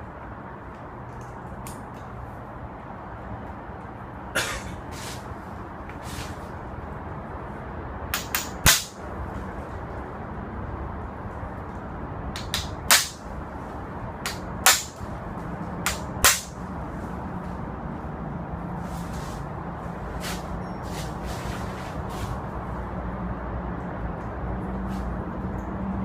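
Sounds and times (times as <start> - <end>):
sharp knocks: 8.1 - 9.0, 12.4 - 13.2, 14.2 - 15.0, 15.8 - 16.6.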